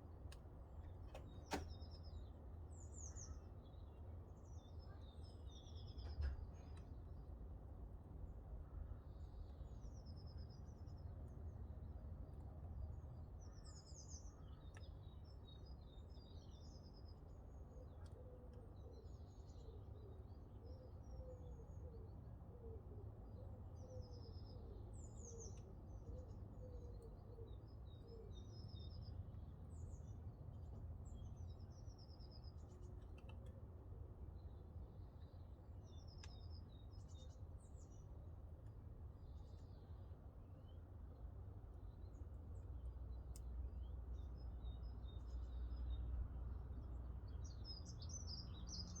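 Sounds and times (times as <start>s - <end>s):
faint clicks: 32.7s - 33.6s, 36.1s - 36.4s, 43.3s - 43.5s.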